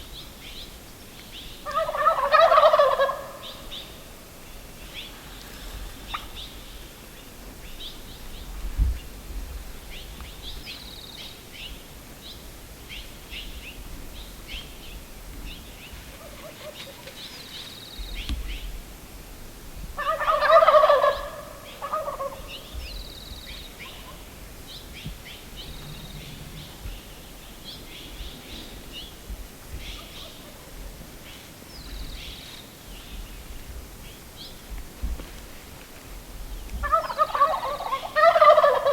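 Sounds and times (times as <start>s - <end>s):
turkey gobbling: 1.7s - 3.5s, 20.0s - 22.5s, 36.8s - 38.9s.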